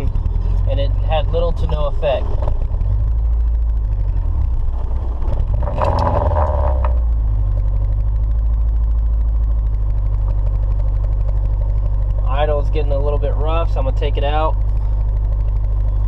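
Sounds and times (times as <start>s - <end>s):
car engine idling rough: 0.0s - 16.0s.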